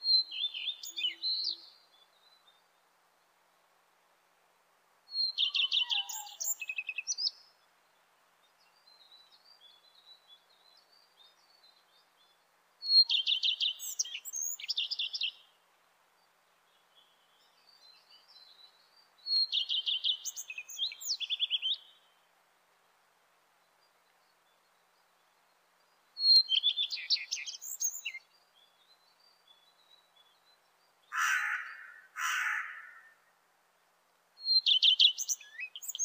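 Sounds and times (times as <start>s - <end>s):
soft bird chirps: 5.1s - 15.6s, 16.2s - 22.2s, 23.5s - 32.0s, 34.4s - 36.0s.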